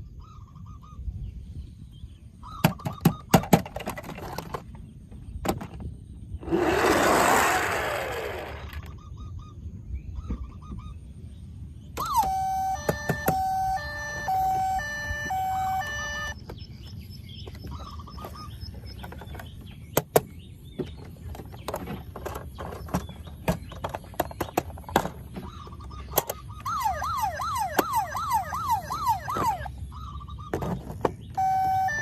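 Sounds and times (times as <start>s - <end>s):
plastic toys clicking and knocking: 2.6s - 4.8s, 19.0s - 25.4s
toy two-note siren tune: 12.0s - 16.4s, 26.6s - 29.8s, 31.4s - 32.0s.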